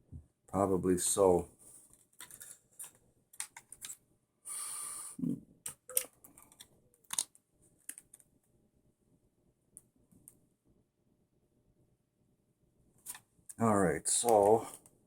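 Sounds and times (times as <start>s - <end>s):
clicks of small parts being handled: 1.9s - 4.0s, 5.7s - 8.3s.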